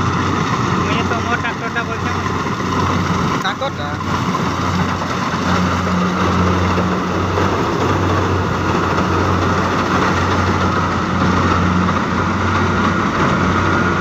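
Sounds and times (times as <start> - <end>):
broad rushing noise: 0.0 - 14.0
diesel engine running: 0.0 - 14.0.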